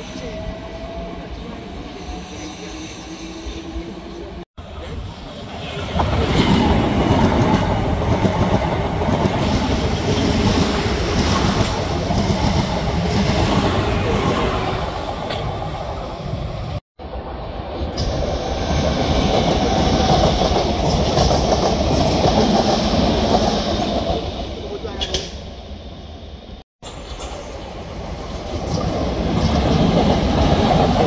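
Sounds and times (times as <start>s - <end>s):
train wheels on rails: 0.0s - 15.9s, 17.8s - 25.5s, 26.8s - 31.0s.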